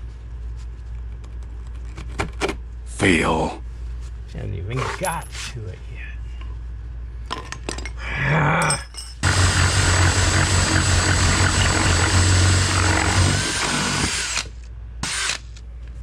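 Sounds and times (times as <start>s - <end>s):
power tool humming: 9.2s - 15.4s.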